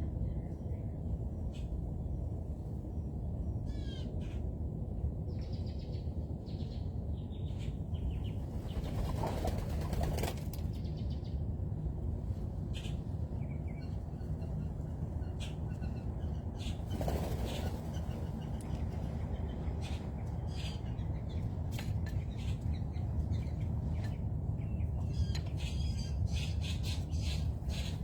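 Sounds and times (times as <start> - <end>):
low background rumble: 0.0 - 28.0
wings flapping: 8.7 - 10.7, 16.9 - 18.2.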